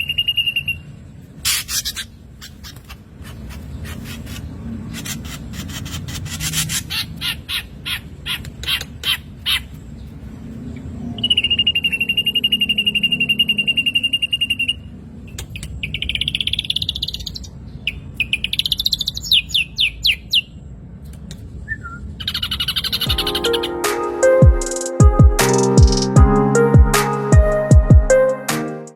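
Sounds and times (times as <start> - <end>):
bird song with chips and whistles: 0.0 - 0.9, 11.2 - 20.6, 21.6 - 23.8.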